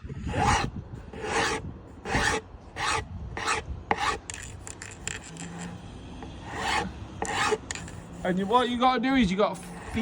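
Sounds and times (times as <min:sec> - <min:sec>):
hand planer strokes on wood: 0:00.2 - 0:04.5, 0:06.5 - 0:08.6, 0:09.6 - 0:10.0.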